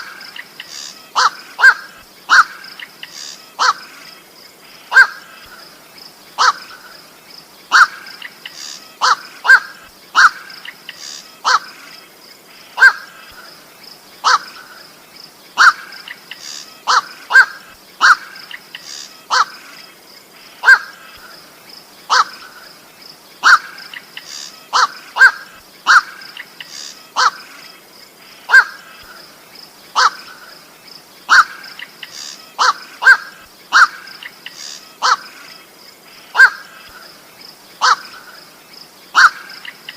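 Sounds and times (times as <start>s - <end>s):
heron calls: 0.4s - 3.9s, 4.9s - 5.3s, 6.4s - 6.8s, 7.7s - 11.7s, 12.8s - 13.2s, 14.2s - 14.7s, 15.6s - 19.6s, 20.6s - 21.0s, 22.1s - 22.6s, 23.4s - 27.5s, 28.5s - 28.9s, 29.9s - 30.5s, 31.3s - 35.4s, 36.3s - 37.0s, 37.8s - 38.4s, 39.1s - 39.9s.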